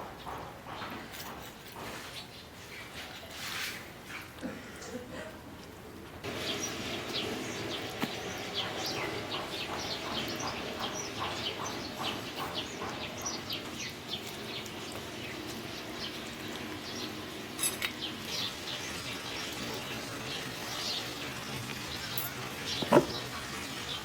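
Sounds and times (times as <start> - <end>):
birds chirping: 6.2 - 24.0.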